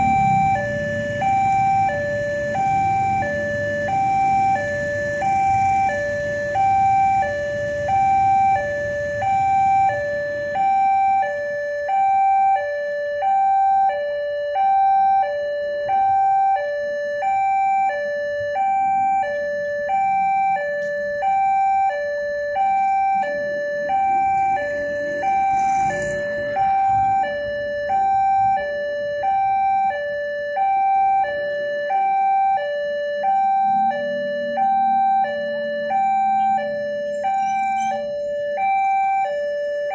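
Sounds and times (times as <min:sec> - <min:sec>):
two-tone crossing alarm: 0:00.0 - 0:39.9.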